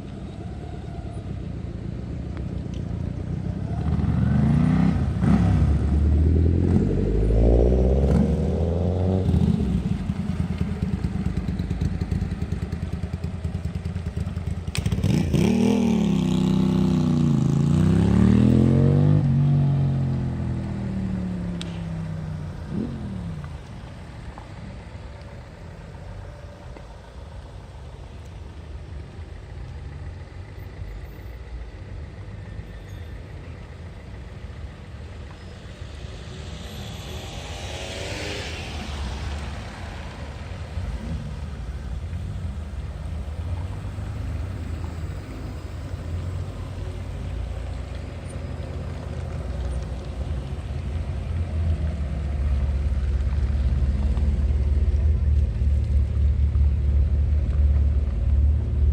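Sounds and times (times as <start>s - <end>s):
car engine and road rumble: 0.0s - 58.9s
vehicle whooshing past: 35.4s - 47.2s.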